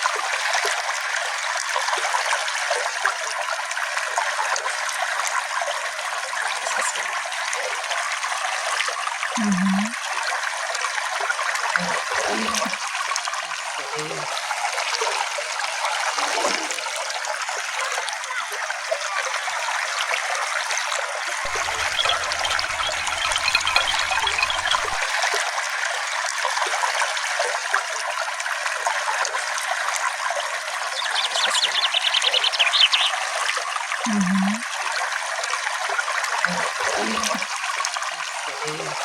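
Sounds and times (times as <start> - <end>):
small stream trickling: 0.0 - 39.0
bird trilling: 21.5 - 25.1, 31.0 - 33.2.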